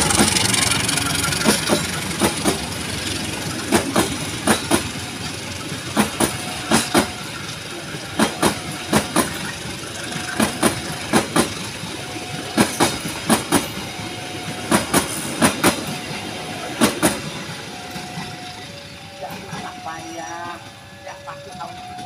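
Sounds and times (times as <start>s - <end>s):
wheels clacking over rail joint: 0.0s - 14.0s, 14.6s - 16.1s, 16.7s - 18.4s
rumble of wheels on rail: 0.0s - 22.0s.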